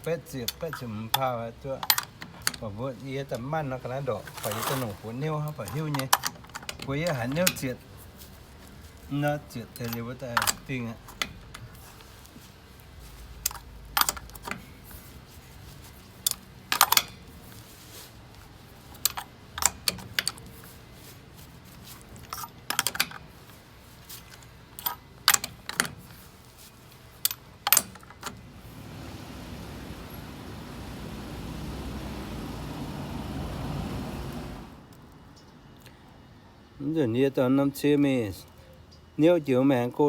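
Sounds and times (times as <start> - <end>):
steady rushing noise: 28.4 - 34.8.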